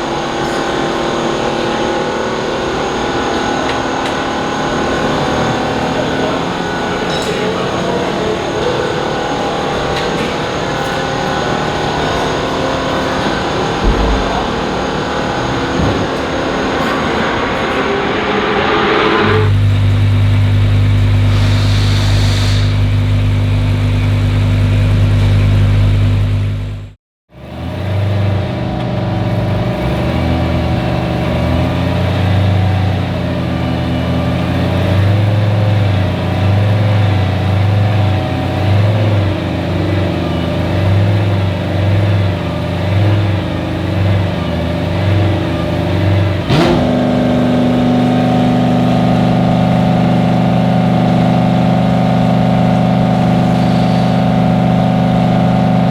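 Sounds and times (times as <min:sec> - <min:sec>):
race car engine idling: 0:00.0 - 0:17.9, 0:19.3 - 0:55.9
mechanical noise: 0:00.0 - 0:22.9.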